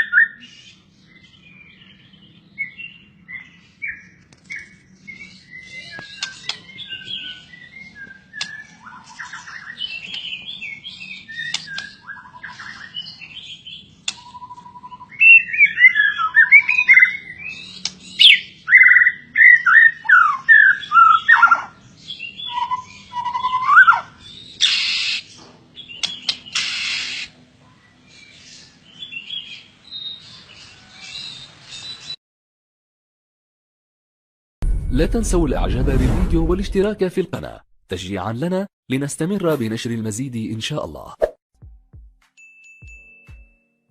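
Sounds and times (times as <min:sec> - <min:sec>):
songbird singing: 0:00.0 - 0:32.2
harsh rasping bird calls: 0:05.4 - 0:27.4.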